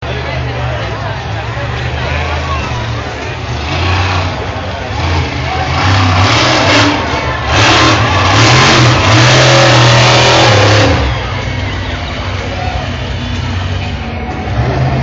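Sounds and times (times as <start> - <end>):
large vehicle engine revving: 0.0 - 15.0.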